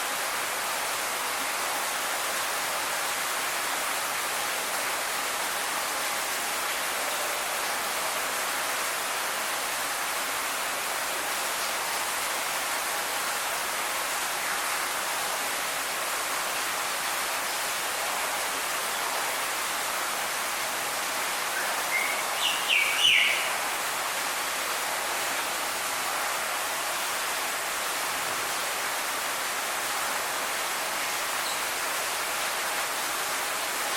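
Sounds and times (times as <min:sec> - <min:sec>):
steady background hiss: 0:00.0 - 0:33.9
bird calls: 0:21.6 - 0:23.6.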